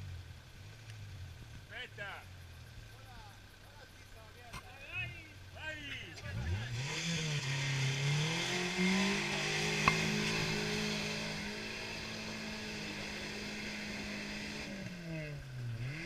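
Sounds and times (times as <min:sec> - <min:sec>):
engine revving high: 0:06.2 - 0:16.0.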